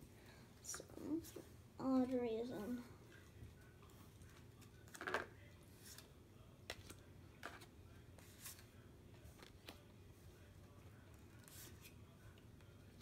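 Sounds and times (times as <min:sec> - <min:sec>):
trading cards being handled: 0:03.2 - 0:10.5, 0:11.1 - 0:12.0.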